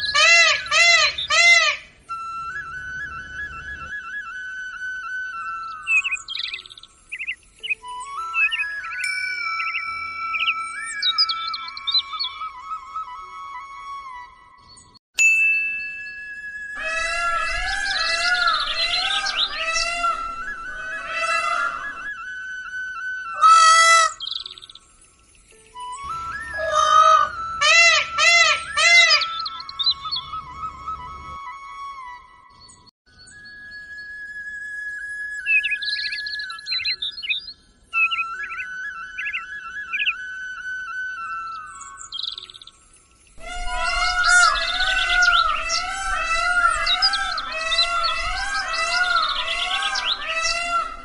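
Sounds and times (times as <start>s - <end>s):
loud peafowl call: 0.0s - 1.9s, 16.8s - 22.1s, 23.4s - 24.3s, 26.6s - 29.4s, 43.4s - 51.0s
background music: 0.0s - 14.9s, 25.4s - 32.7s
flute music: 0.0s - 15.0s, 15.6s - 51.0s
sharp high chirps: 5.8s - 12.2s.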